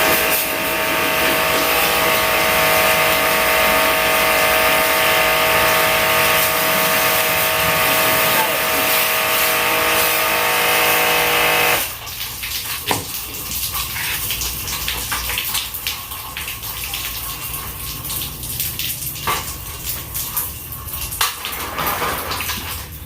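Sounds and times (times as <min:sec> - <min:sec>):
water hissing: 0:00.0 - 0:12.0, 0:12.7 - 0:14.6
water sprayer motor whine: 0:00.0 - 0:12.0
water trickling and splashing: 0:00.0 - 0:23.0.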